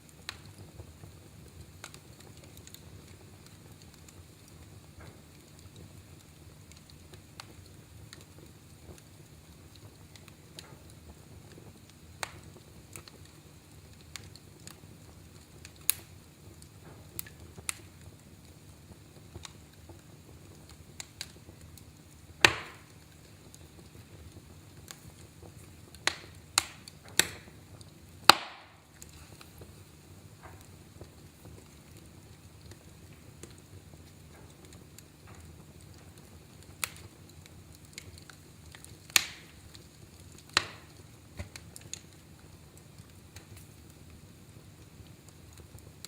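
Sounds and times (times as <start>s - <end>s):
loud pops of fire: 0.0s - 46.0s
low rumble of flames: 0.0s - 46.0s
wood fire crackling: 0.0s - 46.0s.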